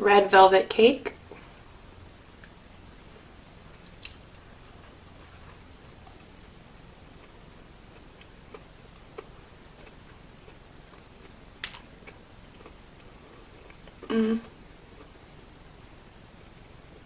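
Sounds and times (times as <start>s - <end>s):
chewing and biting: 3.8s - 6.2s.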